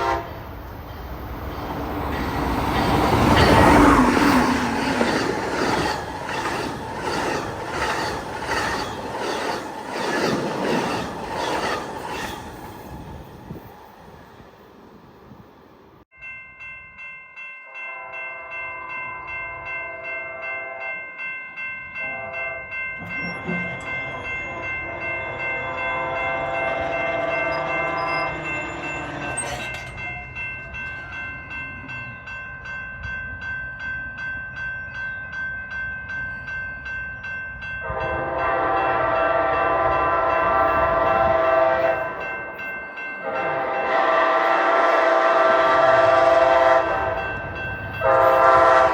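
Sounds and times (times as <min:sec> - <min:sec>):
train horn blasts: 0:00.0 - 0:00.6, 0:17.7 - 0:18.5, 0:19.9 - 0:21.0, 0:22.0 - 0:22.7, 0:23.3 - 0:29.3, 0:37.8 - 0:42.3, 0:43.2 - 0:47.3, 0:48.0 - 0:48.9
pulsing ringing: 0:17.8 - 0:37.8.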